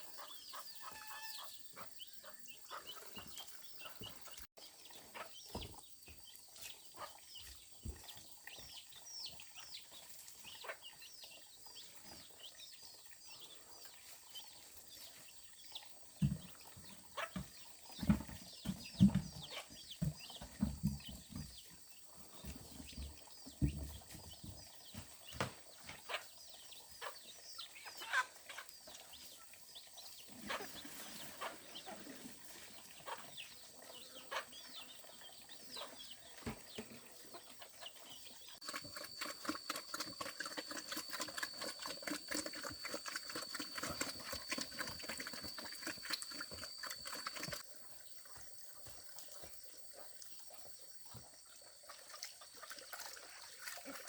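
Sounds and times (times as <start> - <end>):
chickens clucking: 0.0 - 5.8, 10.5 - 11.0, 16.2 - 21.5, 22.3 - 29.5, 30.2 - 47.6.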